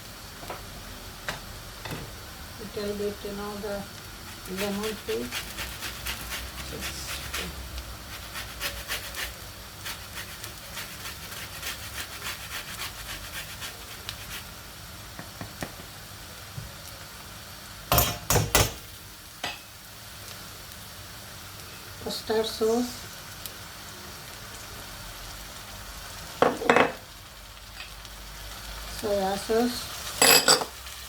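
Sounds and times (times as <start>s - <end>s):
utensil clicking and scraping in pan: 4.3s - 14.5s
loud knocks on pan: 17.9s - 18.8s.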